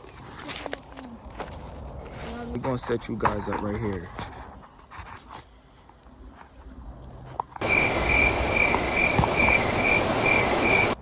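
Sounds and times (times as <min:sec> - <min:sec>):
cricket chirping: 0:07.6 - 0:11.0
steady hiss: 0:07.6 - 0:11.0.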